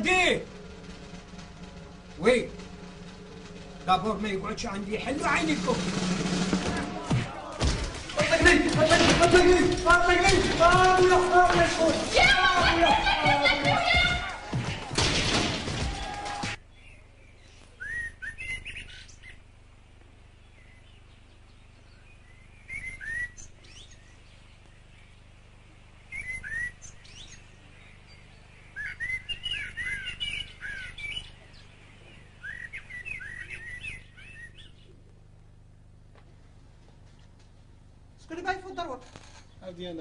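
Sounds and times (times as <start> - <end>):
faint low hum: 0.0 - 40.0
small birds chirping: 16.6 - 36.1, 37.0 - 40.0.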